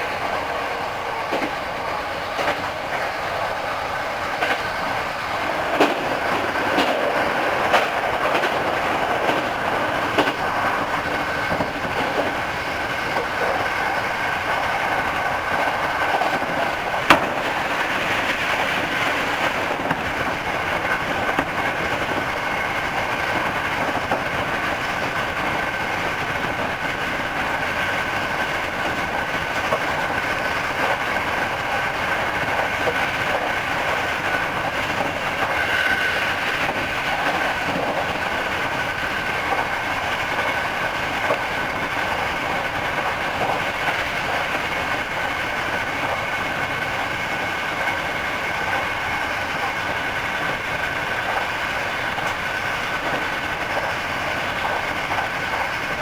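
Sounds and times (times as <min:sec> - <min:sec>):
electric train running noise: 0:00.0 - 0:56.0
wheels clicking over rail joints: 0:00.0 - 0:56.0.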